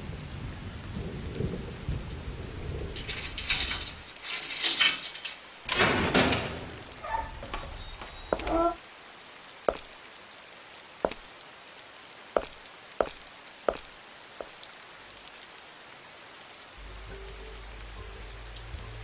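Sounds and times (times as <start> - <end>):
sharp taps: 9.7 - 10.0, 11.0 - 11.3, 12.4 - 14.6.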